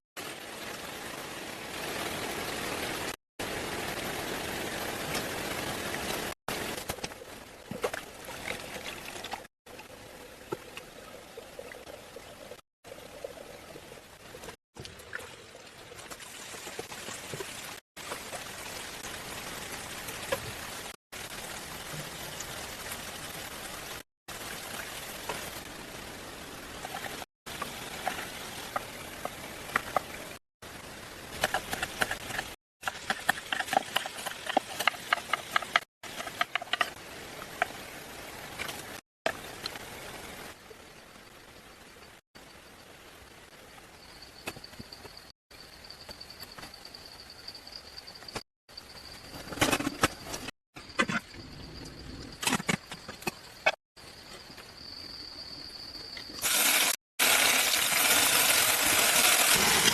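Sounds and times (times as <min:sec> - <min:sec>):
rain-like hiss: 0:00.2 - 0:07.6, 0:12.8 - 0:49.3, 0:56.3 - 0:59.9.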